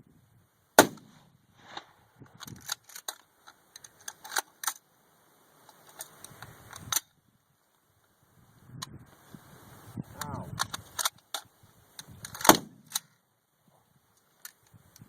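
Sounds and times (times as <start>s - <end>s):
loud sharp crack: 0.8s - 2.0s, 12.4s - 13.1s
rifle action metallic clicks: 2.4s - 4.8s, 10.6s - 13.2s.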